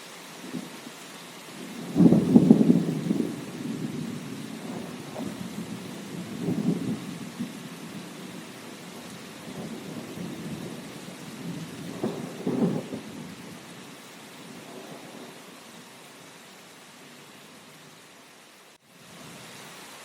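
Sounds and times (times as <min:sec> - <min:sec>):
steady rain: 0:00.0 - 0:20.0
low rolling thunder: 0:01.6 - 0:15.6.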